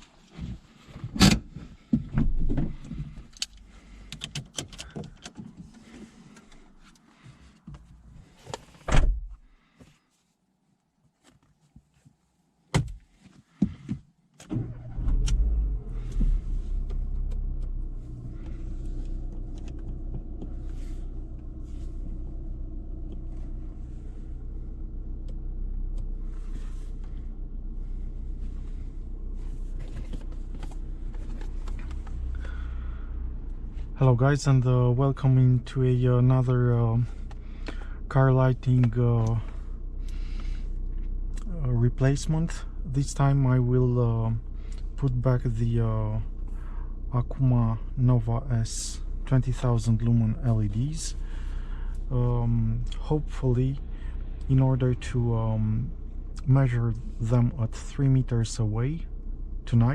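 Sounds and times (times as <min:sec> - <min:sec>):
car engine starting and idling: 0:00.0 - 0:08.6, 0:14.4 - 0:59.9.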